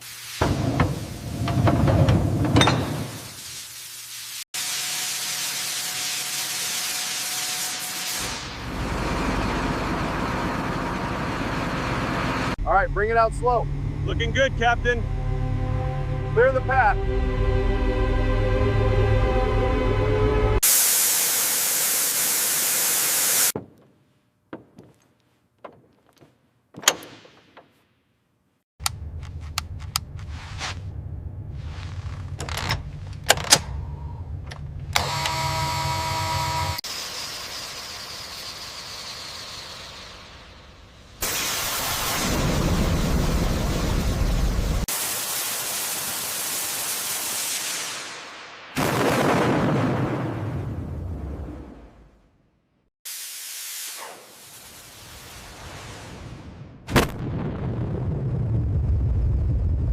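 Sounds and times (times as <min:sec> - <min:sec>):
loud even hiss: 0:00.0 - 0:01.7, 0:02.7 - 0:08.7, 0:20.6 - 0:23.6, 0:36.8 - 0:48.8, 0:53.1 - 0:56.5
music: 0:13.9 - 0:20.6
clicks and knocks: 0:23.6 - 0:27.8.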